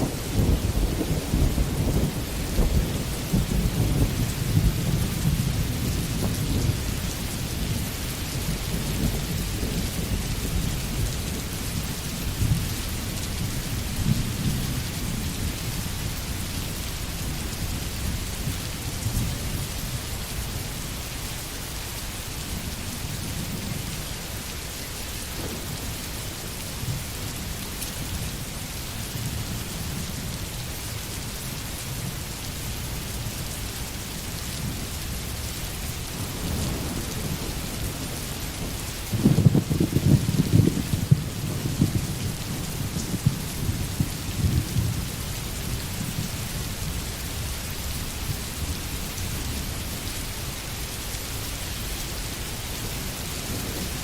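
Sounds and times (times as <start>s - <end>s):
distant thunder rumble: 0.0s - 11.5s, 25.2s - 26.2s, 36.2s - 45.2s
rain falling: 0.0s - 54.0s.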